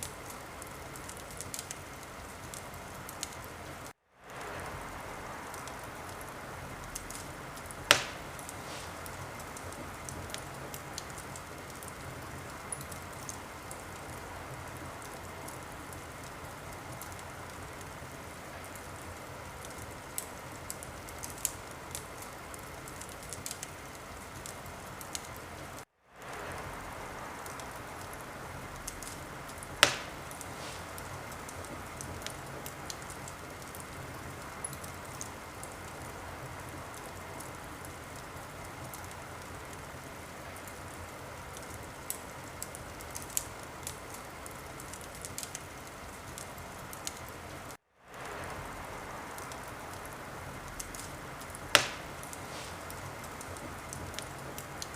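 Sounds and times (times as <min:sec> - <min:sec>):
wood fire crackling and popping: 0:00.0 - 0:54.9.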